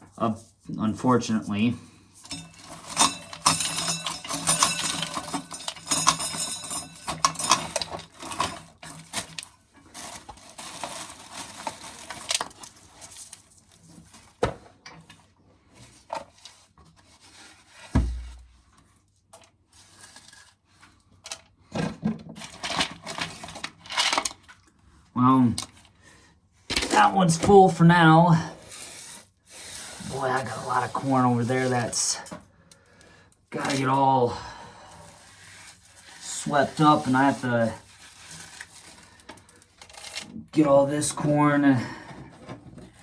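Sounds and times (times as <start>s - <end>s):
corn kernels clattering in metal can: 2.3s - 13.4s, 35.9s - 39.1s
dull thump: 18.0s - 18.5s.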